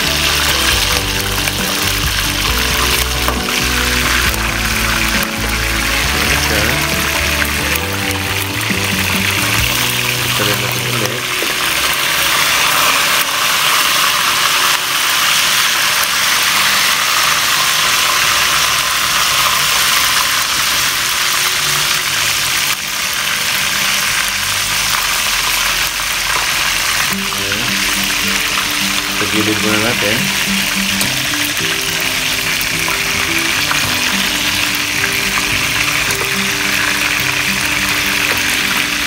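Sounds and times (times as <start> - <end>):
hot oil sizzling: 0.0 - 39.0.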